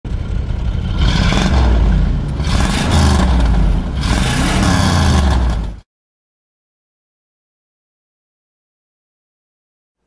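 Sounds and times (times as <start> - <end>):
car engine revving: 0.1 - 5.8
scraping whirring noise: 0.6 - 5.8.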